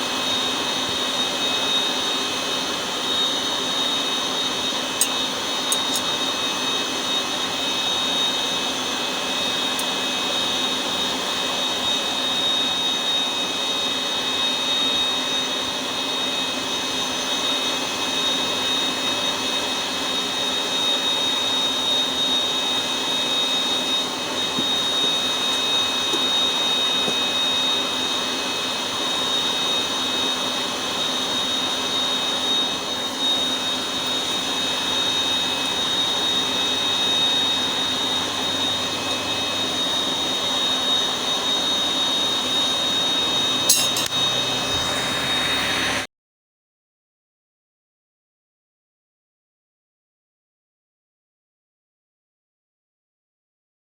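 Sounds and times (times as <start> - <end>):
high whine: 0.0 - 13.6, 20.3 - 46.1
forge burner rushing: 21.6 - 46.1.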